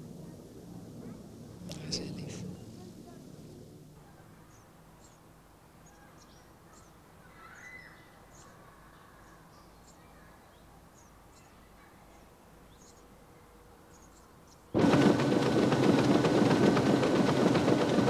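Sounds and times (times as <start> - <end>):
low steady hum: 0.0 - 4.2.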